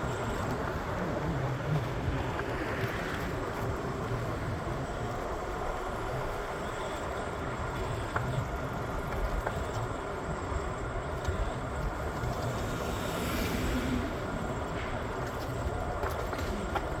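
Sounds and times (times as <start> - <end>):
moving vehicle rumble: 8.3 - 17.0.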